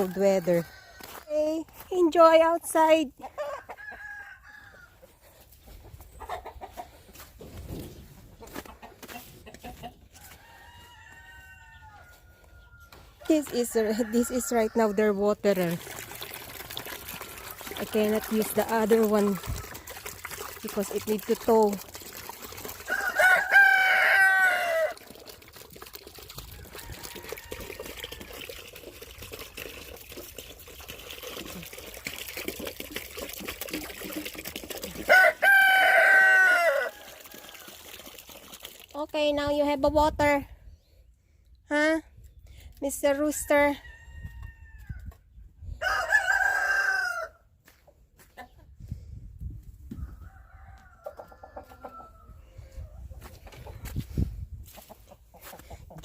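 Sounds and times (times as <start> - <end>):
water trickling from a hose: 0.0 - 3.0, 12.3 - 40.4
rooster crowing: 3.4 - 5.0, 10.2 - 13.0, 22.9 - 25.0, 35.1 - 37.5, 45.8 - 47.4, 50.2 - 52.4
chickens clucking: 5.0 - 10.2, 54.7 - 56.0.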